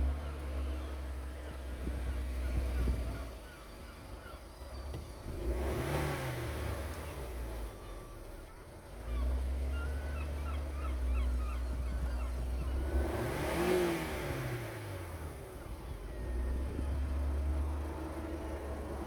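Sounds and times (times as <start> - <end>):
car engine idling and revving: 4.7 - 10.4, 11.0 - 19.0.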